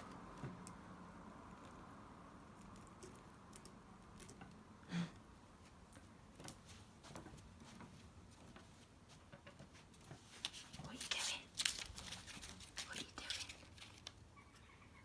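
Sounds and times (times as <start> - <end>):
squirrel clicks and scratches: 0.0 - 4.8, 5.6 - 14.3.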